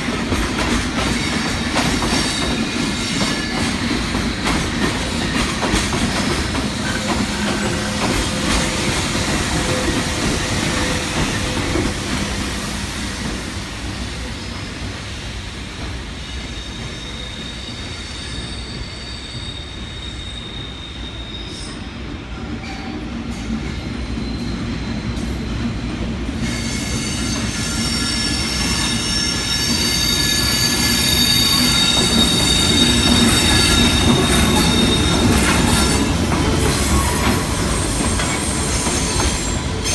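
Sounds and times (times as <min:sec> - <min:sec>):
train wheels rumbling on rails: 0:00.0 - 0:39.9
high-pitched wheel squeal: 0:16.2 - 0:22.0, 0:26.5 - 0:39.9.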